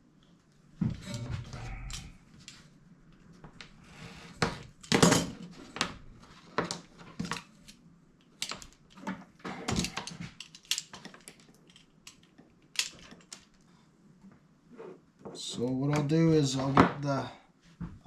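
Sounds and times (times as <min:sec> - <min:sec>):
small parts and tools clattering: 0:04.5 - 0:05.9, 0:06.5 - 0:13.6.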